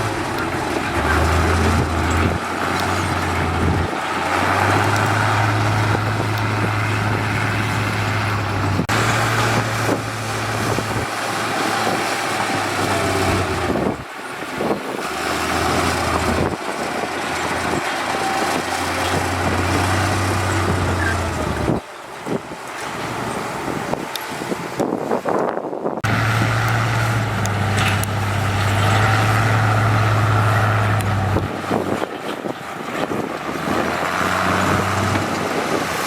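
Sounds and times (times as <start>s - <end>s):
diesel construction machinery running: 0.0s - 36.0s.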